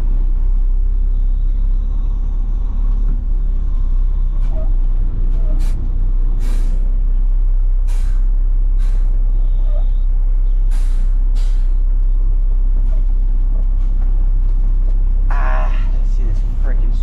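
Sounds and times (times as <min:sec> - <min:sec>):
diesel engine rumbling: 0:00.0 - 0:17.0
air brake hisses: 0:06.4 - 0:06.8, 0:07.9 - 0:08.2, 0:08.8 - 0:09.2, 0:10.7 - 0:11.8.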